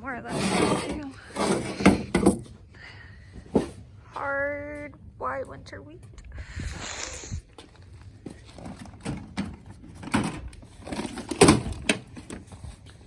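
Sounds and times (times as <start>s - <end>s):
scraping rustle: 0.2s - 2.6s
goods knocking and clunking: 0.8s - 2.6s.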